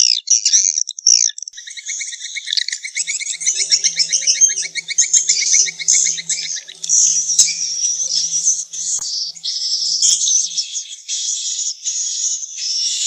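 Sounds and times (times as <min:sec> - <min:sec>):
swiftlets twittering: 0:03.0 - 0:10.7.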